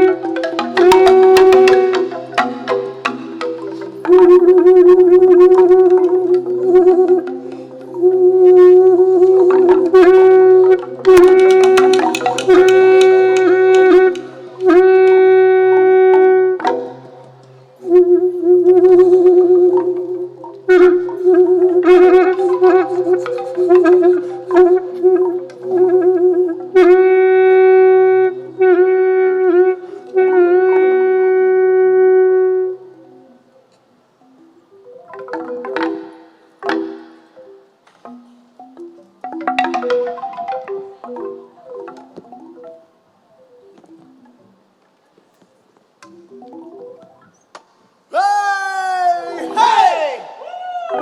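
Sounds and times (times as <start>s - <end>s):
reedy wind instrument: 0.0s - 33.7s
lower accompanying notes: 0.0s - 44.7s
sharp clicking strikes: 9.4s - 15.2s.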